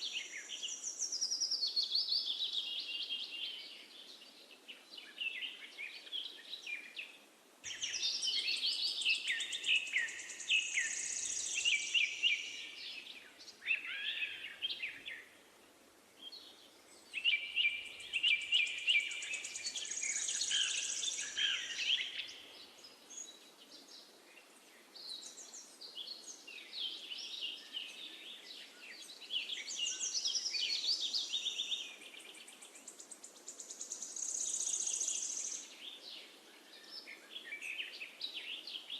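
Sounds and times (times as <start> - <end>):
faint steady hiss: 0.0 - 38.9
songbirds chirping and singing: 0.0 - 38.9.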